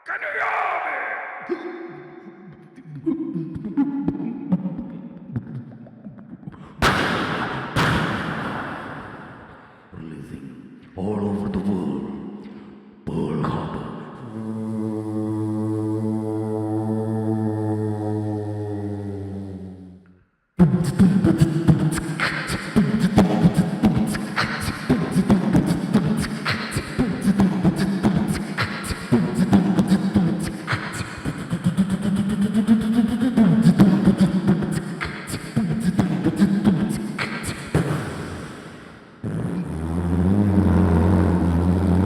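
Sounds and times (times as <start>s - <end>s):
low pitched vocal line: 0.0s - 42.0s
beatboxing vocal drum rhythm: 20.6s - 39.8s.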